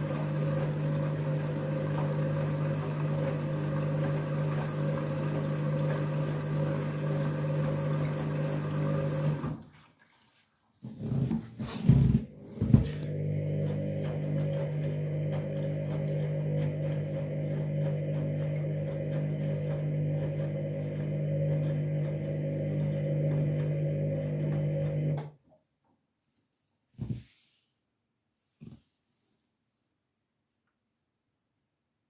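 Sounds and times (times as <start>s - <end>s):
washing machine motor hum: 0.0s - 9.7s, 11.0s - 25.3s.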